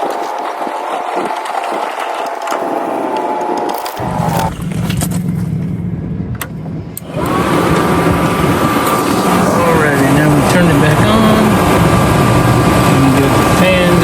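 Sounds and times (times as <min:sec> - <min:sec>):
steady mechanical hum: 0:00.0 - 0:14.0
louder tone: 0:03.1 - 0:14.0.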